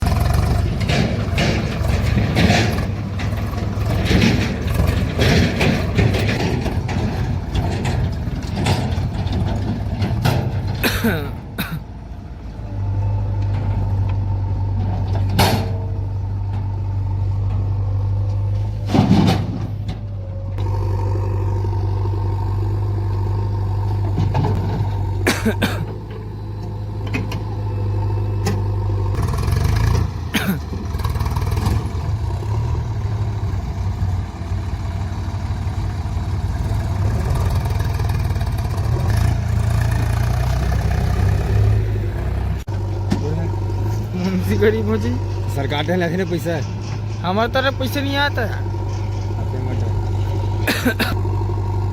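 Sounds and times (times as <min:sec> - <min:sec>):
diesel engines running: 0:00.0 - 0:51.9
loader clanks and knocks: 0:00.0 - 0:51.9.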